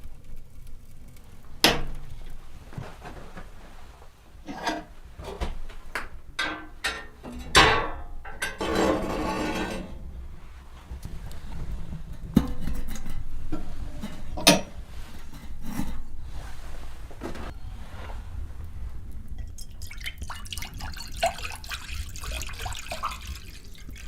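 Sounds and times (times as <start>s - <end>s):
rough scraping: 8.6s - 10.0s.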